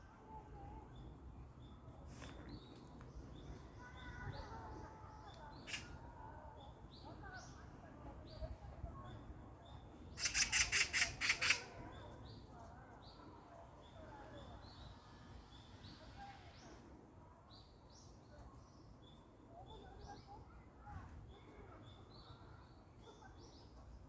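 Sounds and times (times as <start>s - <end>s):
small birds chirping: 0.9s - 7.6s, 9.0s - 13.2s
harsh rattling bird call: 5.5s - 6.0s, 10.2s - 11.8s.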